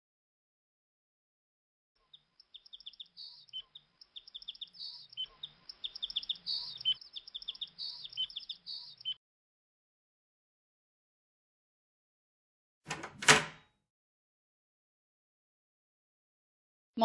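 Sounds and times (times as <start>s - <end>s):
songbirds chirping: 2.0s - 9.2s.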